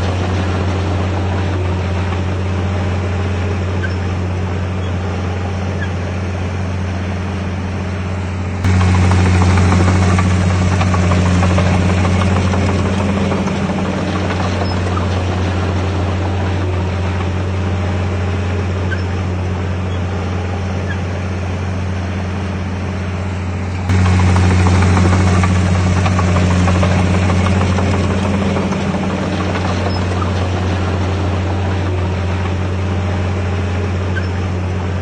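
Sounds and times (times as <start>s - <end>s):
bulldozer diesel engine humming: 0.0s - 35.0s.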